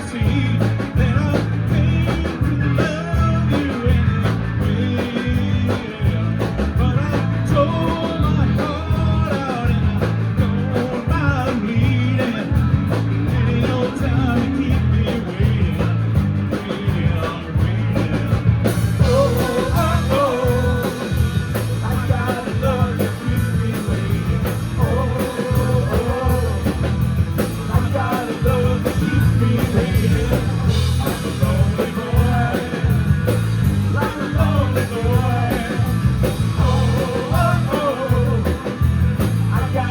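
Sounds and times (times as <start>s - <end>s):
bass: 0.0s - 39.9s
drum kit: 0.0s - 39.9s
electric guitars: 0.0s - 39.9s
keyboard: 0.0s - 39.9s
person singing: 19.0s - 39.9s.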